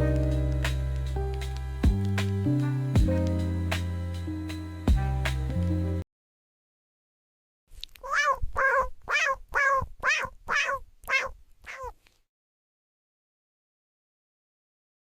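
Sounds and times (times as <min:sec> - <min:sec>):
cat meowing: 0:08.0 - 0:12.0.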